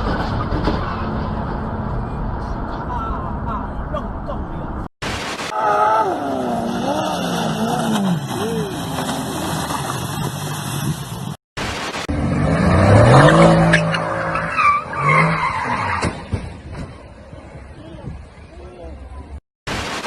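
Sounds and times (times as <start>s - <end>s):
tyres squealing and skidding: 5.6s - 10.9s, 12.7s - 17.2s.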